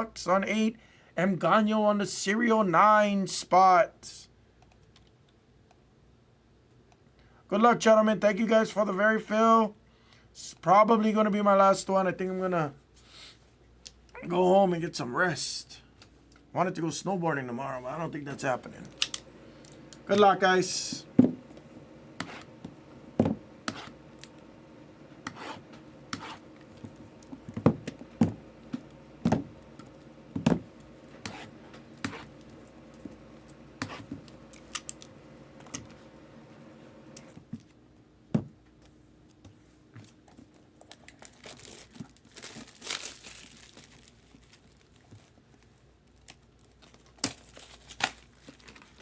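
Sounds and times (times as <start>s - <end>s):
plastic wrapping crinkling and tearing: 40.8s - 49.0s.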